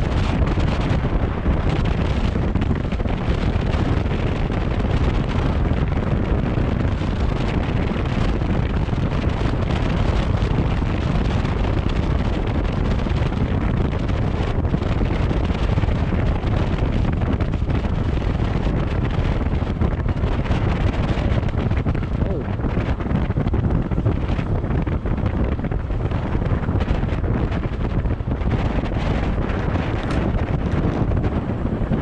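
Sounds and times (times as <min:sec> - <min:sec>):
road noise: 0:00.0 - 0:32.0
wind buffeting microphone: 0:00.0 - 0:32.0.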